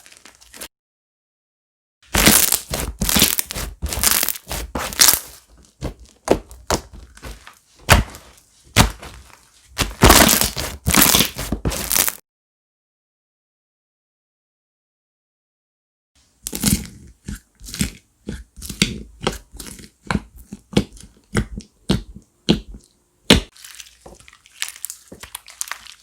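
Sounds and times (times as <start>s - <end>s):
slime squished by hand: 2.1s - 12.2s, 23.4s - 26.0s.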